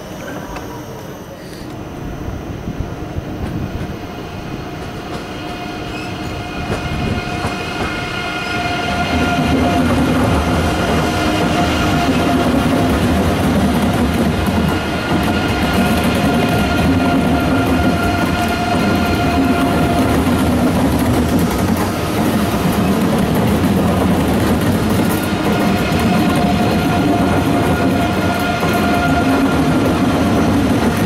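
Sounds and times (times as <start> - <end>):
electric train whine: 0.0 - 31.0
wheels rumbling on rails: 1.8 - 31.0.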